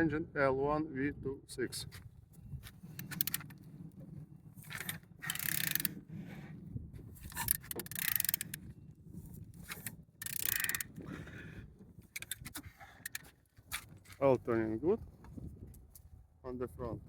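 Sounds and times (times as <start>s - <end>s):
ratchet wrench clicking: 3.0s - 3.5s, 4.6s - 6.0s, 7.2s - 8.6s, 9.7s - 10.9s, 12.2s - 13.3s.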